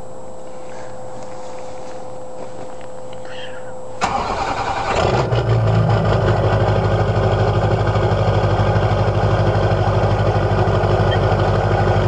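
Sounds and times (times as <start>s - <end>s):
diesel engine idling: 3.2s - 12.0s.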